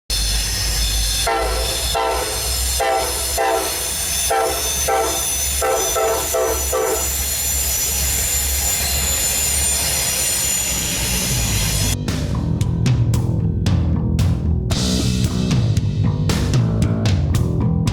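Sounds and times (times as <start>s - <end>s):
locomotive horn short blasts: 1.2s - 7.2s.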